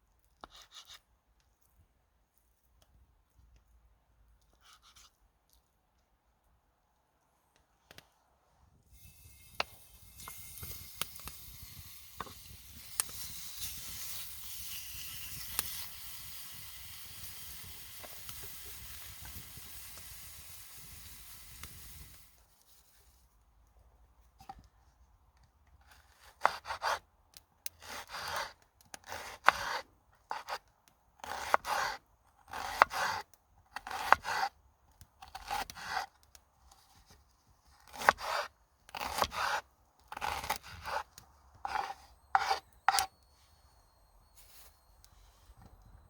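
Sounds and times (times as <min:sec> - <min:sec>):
rasping scraping strokes: 0:08.8 - 0:19.8.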